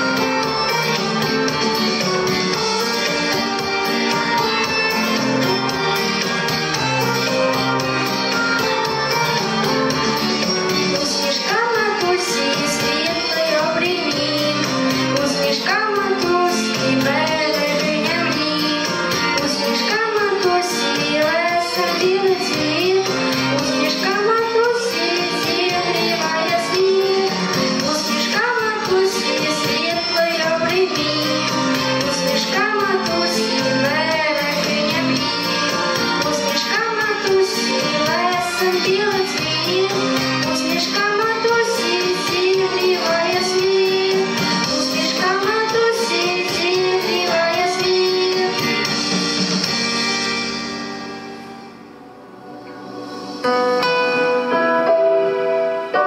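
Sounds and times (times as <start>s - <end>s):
instrumental backing track with beat: 0.0s - 56.0s
children singing: 11.0s - 48.8s.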